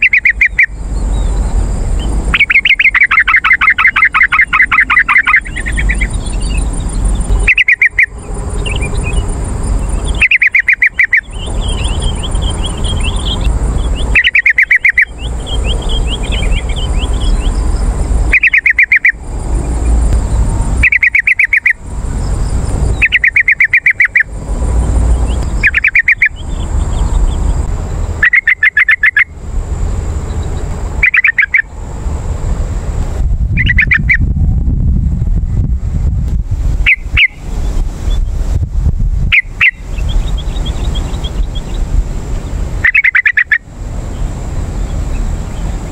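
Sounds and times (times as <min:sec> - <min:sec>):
bird singing trilled phrases: 0:00.0 - 0:29.3, 0:30.2 - 0:31.8, 0:33.5 - 0:34.3, 0:36.8 - 0:38.4, 0:39.3 - 0:45.8
high bird chirps: 0:00.0 - 0:29.3, 0:30.2 - 0:31.7, 0:33.6 - 0:34.3, 0:36.8 - 0:38.4, 0:39.3 - 0:45.8
low rumble: 0:31.8 - 0:39.3.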